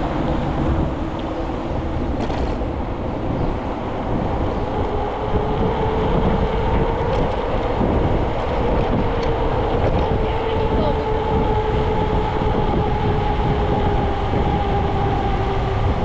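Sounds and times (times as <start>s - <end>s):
wind over microphone: 0.0s - 16.0s
steady hum: 0.5s - 5.5s
bicycle rolling: 0.6s - 5.4s.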